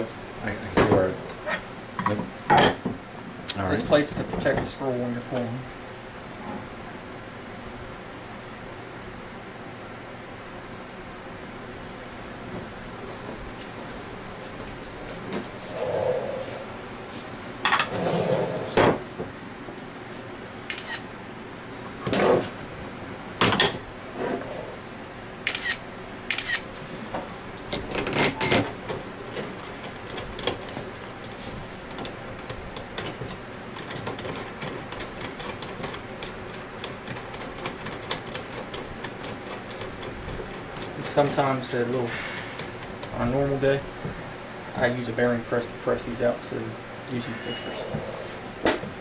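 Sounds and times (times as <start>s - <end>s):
metal tools knocking and clinking: 27.7s - 29.0s.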